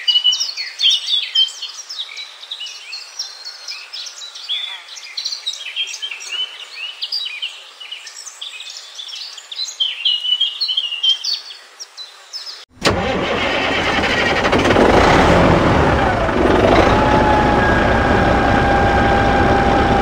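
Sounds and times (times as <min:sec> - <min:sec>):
small birds chirping: 0:00.0 - 0:12.7
loud steady mechanical noise: 0:12.8 - 0:20.0.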